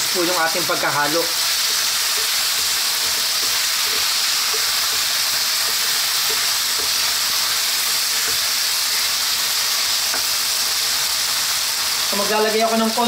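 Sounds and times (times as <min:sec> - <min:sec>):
meat sizzling in a wok: 0:00.0 - 0:13.0
wooden spatula scraping and tapping: 0:01.6 - 0:07.2, 0:08.0 - 0:09.1.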